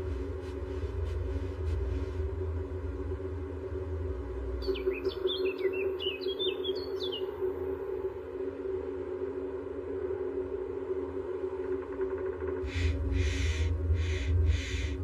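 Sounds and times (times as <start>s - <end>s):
low drone and rumble: 0.0s - 15.0s
bird chirping: 4.6s - 7.3s.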